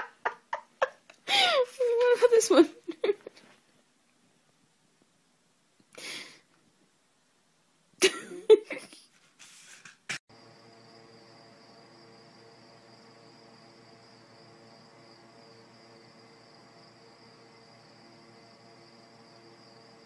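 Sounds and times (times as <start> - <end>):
faint high-pitched whine: 10.3 - 20.0
low hum: 10.3 - 20.0.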